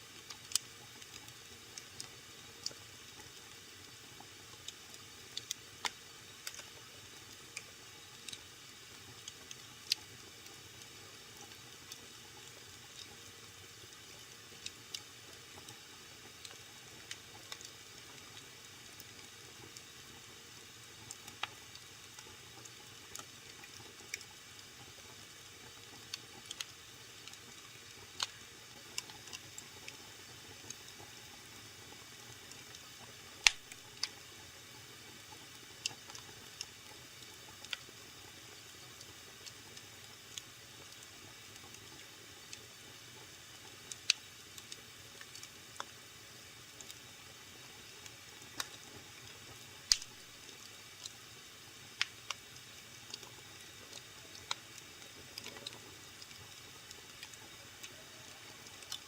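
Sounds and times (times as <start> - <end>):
faint steady hiss: 0.0 - 59.0
wood fire crackling: 0.1 - 20.2, 20.8 - 51.2, 51.8 - 59.0.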